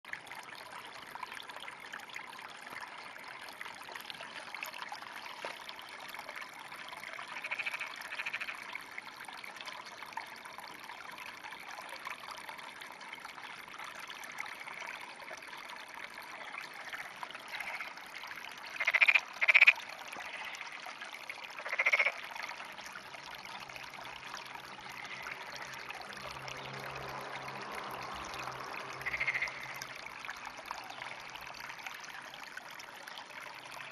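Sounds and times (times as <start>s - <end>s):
water trickling: 0.0s - 33.9s
frogs croaking: 7.2s - 8.8s, 16.9s - 18.0s, 18.6s - 22.8s, 24.5s - 30.5s.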